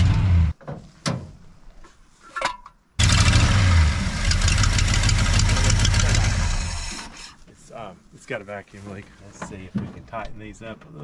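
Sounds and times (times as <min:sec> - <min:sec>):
car engine idling: 0:03.0 - 0:06.9.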